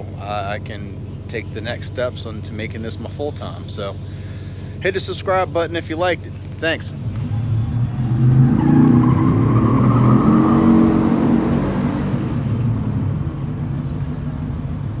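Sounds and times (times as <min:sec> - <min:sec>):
engine running through exhaust: 0:06.7 - 0:15.0.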